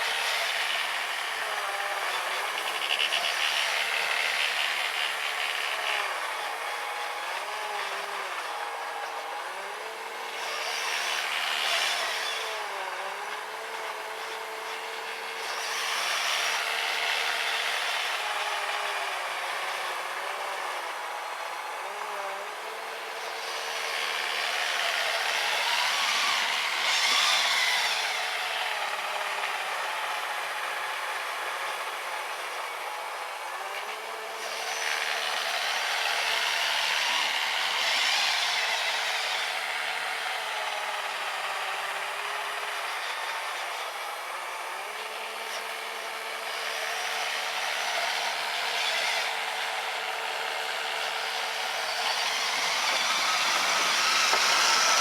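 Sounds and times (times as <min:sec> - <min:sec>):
electric motor whine: 0:00.0 - 0:55.0
snow blower rushing hiss: 0:50.1 - 0:55.0.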